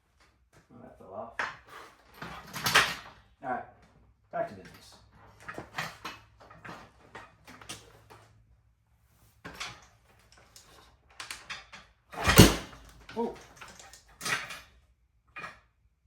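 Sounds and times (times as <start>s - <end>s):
engine bang: 12.2s - 12.8s.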